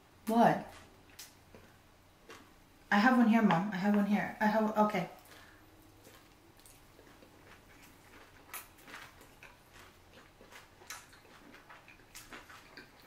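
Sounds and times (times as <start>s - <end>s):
quiet chewing: 0.7s - 2.7s, 5.1s - 13.0s.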